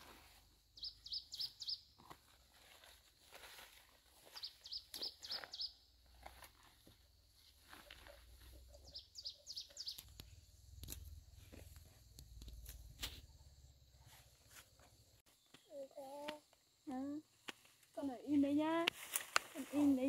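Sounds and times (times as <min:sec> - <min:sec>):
small bird chirping: 0:00.6 - 0:02.1, 0:04.2 - 0:06.0, 0:07.6 - 0:17.1
branches snapping and rustling: 0:18.8 - 0:20.0.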